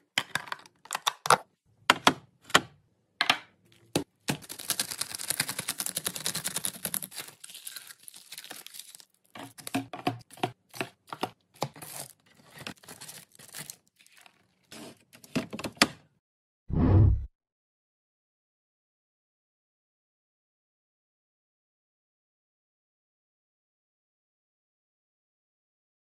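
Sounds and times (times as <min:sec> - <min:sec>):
items clicking and knocking: 0:00.0 - 0:07.1, 0:09.3 - 0:13.8, 0:14.8 - 0:16.1
plastic packaging crinkling and tearing: 0:04.4 - 0:09.8, 0:11.0 - 0:15.1
loud thump: 0:16.7 - 0:17.3.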